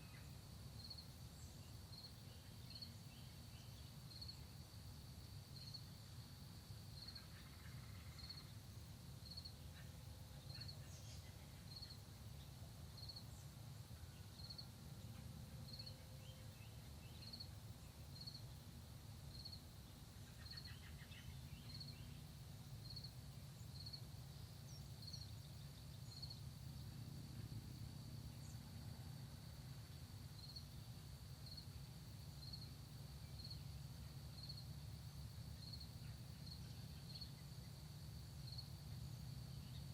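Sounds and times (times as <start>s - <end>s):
insect chirping: 0.0s - 39.9s
faint bird calls: 7.0s - 8.6s, 20.1s - 22.2s.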